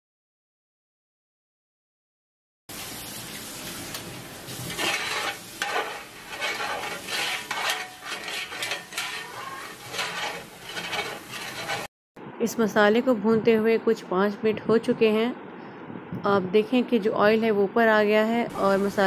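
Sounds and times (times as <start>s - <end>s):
paste sizzling in oil: 2.7s - 11.9s, 18.5s - 19.0s
spoon scraping a metal pot: 4.7s - 11.9s.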